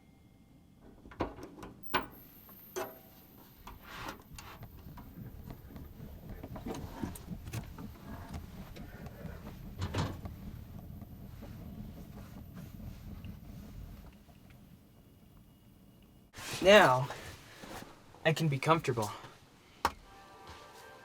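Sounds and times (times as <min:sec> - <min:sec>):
heater running: 0:00.8 - 0:17.9
heater clicks and knocks: 0:01.1 - 0:14.6.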